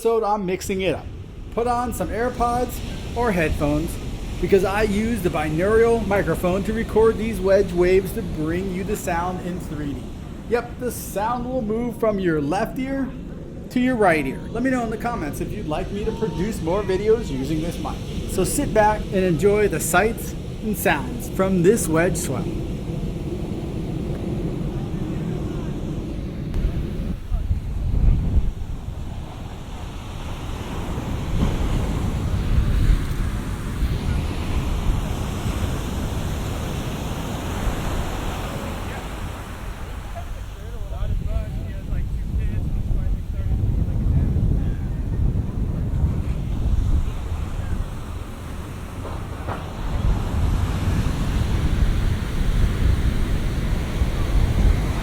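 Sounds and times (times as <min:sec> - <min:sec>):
wind rumbling on microphone: 0:00.0 - 0:55.0
surf breaking on beach: 0:00.6 - 0:55.0.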